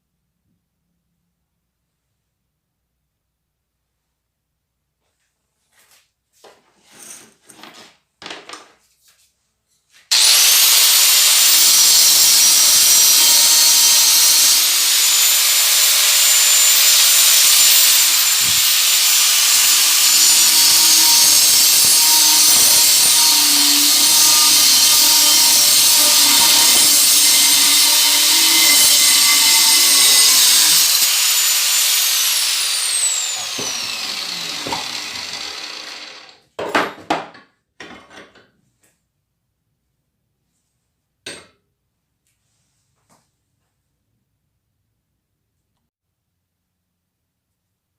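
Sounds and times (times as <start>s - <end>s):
drill press motor whining: 10.1s - 36.4s.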